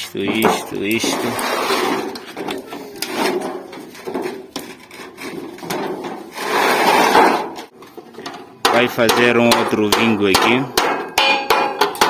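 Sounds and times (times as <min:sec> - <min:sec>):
rasping strokes on sheet metal: 0:00.9 - 0:02.2, 0:02.9 - 0:07.4.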